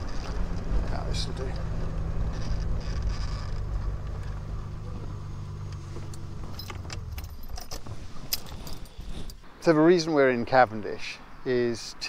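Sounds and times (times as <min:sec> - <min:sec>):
car engine running: 0:00.0 - 0:09.2.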